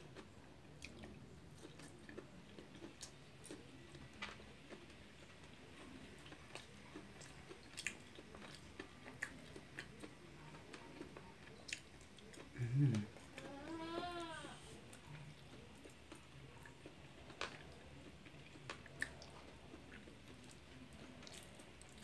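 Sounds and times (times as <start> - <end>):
person chewing food: 0.1 - 22.0
soft mouth clicks and smacks: 5.8 - 13.0.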